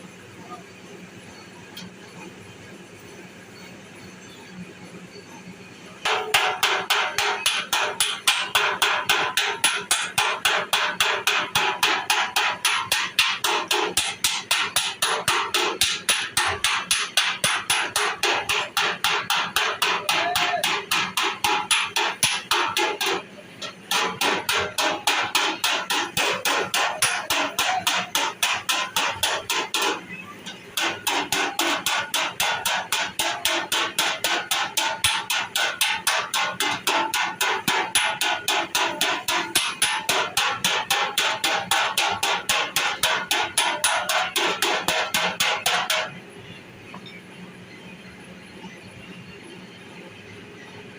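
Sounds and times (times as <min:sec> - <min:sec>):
hammer tapping sheet metal: 0:06.0 - 0:30.0, 0:30.8 - 0:46.2.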